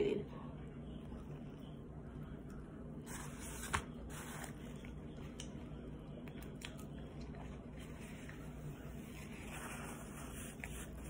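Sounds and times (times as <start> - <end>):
wet chewing: 6.2 - 8.4.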